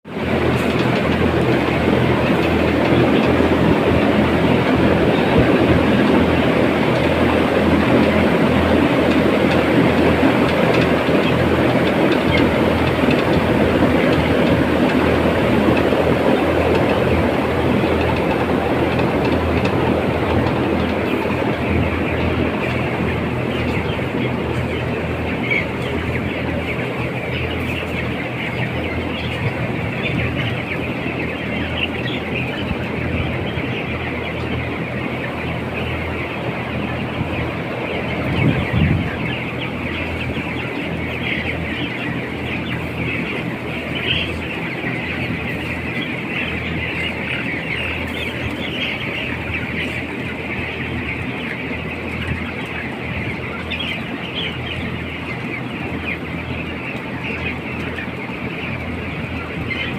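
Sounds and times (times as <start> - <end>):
chickens clucking: 0.1 - 59.9
low mechanical hum: 0.1 - 59.9.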